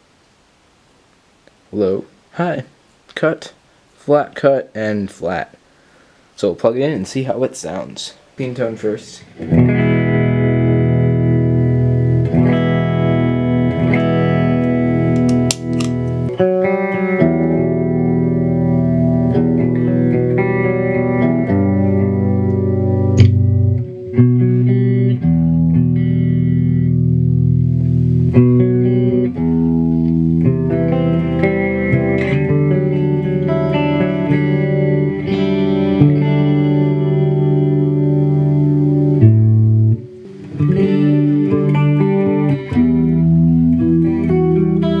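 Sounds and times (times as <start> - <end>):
electric guitar playing chords: 9.2 - 45.0
guitar pick attacks: 13.6 - 17.7, 21.0 - 24.5.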